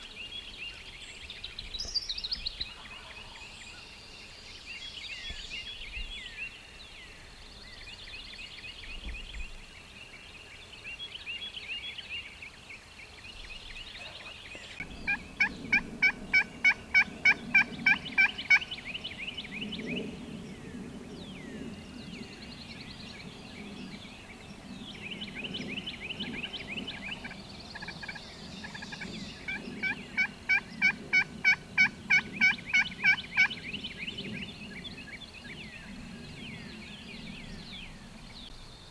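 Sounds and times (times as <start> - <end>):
songbirds chirping: 0.0 - 38.9
turkey yelping: 14.8 - 18.7, 29.5 - 33.5.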